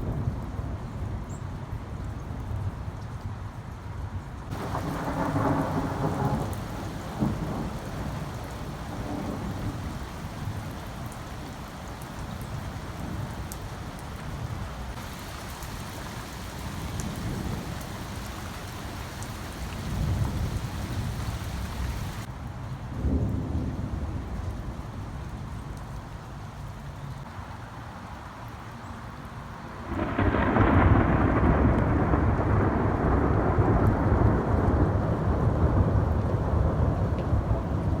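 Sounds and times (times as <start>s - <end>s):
steady rain: 0.0s - 38.0s
thunder rumbling: 4.5s - 22.3s, 29.8s - 38.0s.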